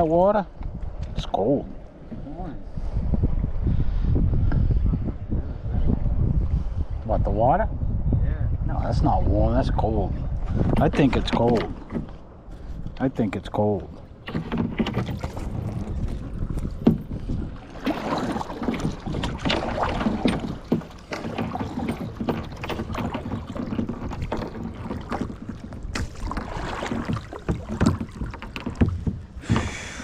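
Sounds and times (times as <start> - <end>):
kayak paddle splashing: 11.3 - 30.0.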